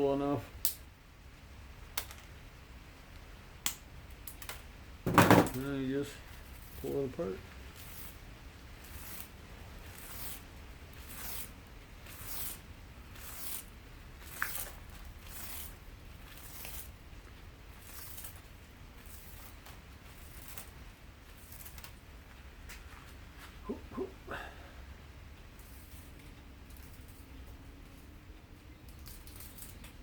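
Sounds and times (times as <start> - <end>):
copper wire scraping and tearing: 7.7 - 8.2, 8.8 - 17.0, 17.7 - 22.0, 28.9 - 30.0.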